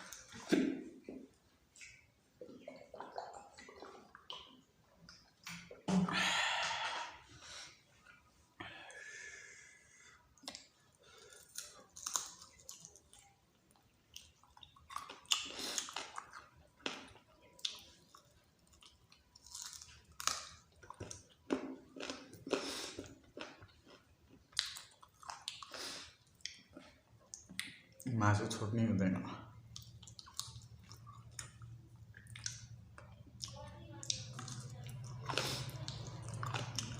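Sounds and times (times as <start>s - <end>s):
person chewing food: 6.4s - 28.1s, 29.2s - 36.9s.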